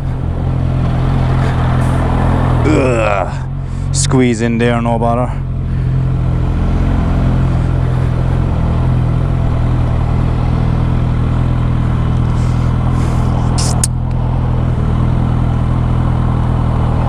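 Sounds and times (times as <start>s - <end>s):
motorcycle engine running: 0.0s - 17.0s
short hissing sounds: 12.3s - 13.9s.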